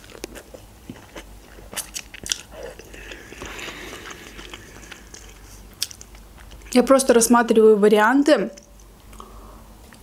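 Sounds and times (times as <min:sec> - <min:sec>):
person chewing noodles: 0:00.0 - 0:06.7
wet mouth noises: 0:00.0 - 0:06.7.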